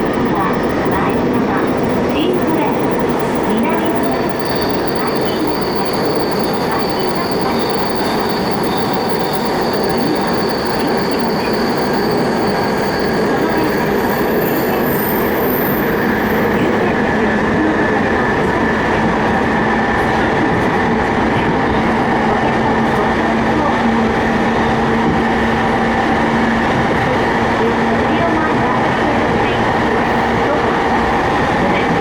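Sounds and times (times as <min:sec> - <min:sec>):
lower whine: 0:00.0 - 0:22.1
high squealing of train: 0:00.0 - 0:32.0
train wheels rumbling on rail: 0:00.0 - 0:32.0.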